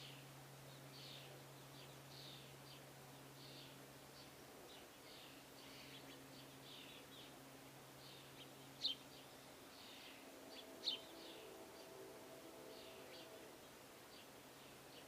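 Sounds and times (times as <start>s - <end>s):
faint steady hum: 0.0s - 15.0s
small birds chirping: 0.0s - 15.0s.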